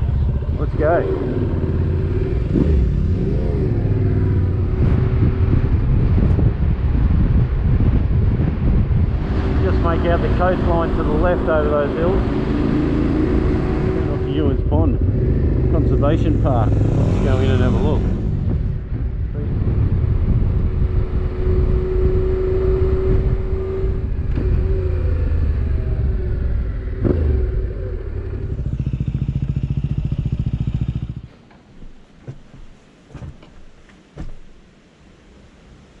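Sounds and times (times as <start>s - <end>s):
motorcycle engine idling: 27.6s - 31.4s.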